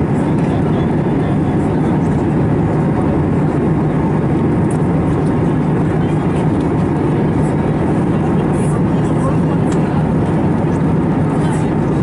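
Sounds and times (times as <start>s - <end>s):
airplane cabin engine roar: 0.0s - 12.0s.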